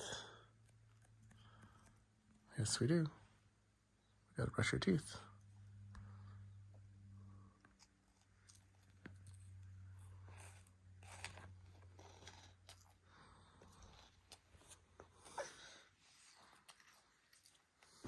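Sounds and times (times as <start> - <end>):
low steady hum: 0.0 - 18.0
toddler munching dry cereal: 7.7 - 18.0.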